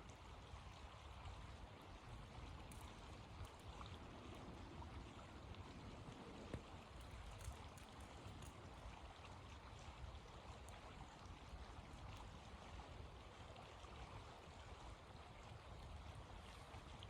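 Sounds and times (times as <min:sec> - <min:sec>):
faint ticks: 0:02.4 - 0:04.5, 0:06.3 - 0:09.1.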